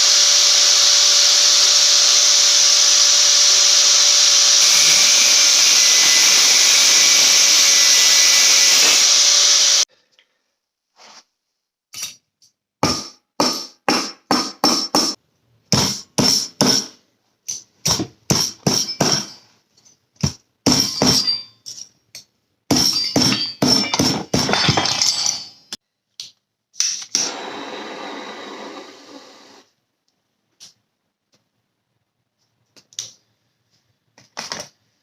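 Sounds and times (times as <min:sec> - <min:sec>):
hammer striking steel: 0:12.8 - 0:15.2, 0:17.9 - 0:19.4.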